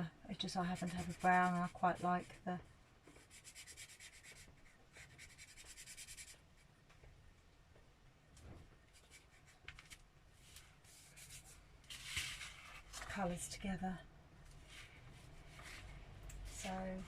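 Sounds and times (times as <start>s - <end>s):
marker scribbling on paper: 0.6s - 2.3s, 3.2s - 6.3s.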